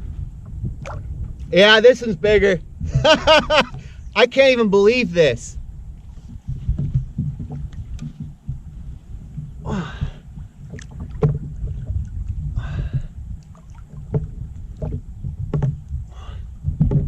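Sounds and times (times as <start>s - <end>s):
water splashing against kayak: 0.5s - 1.7s, 2.9s - 17.0s
knocks on kayak hull: 6.3s - 9.6s, 10.7s - 13.1s, 14.0s - 15.9s, 16.7s - 17.0s.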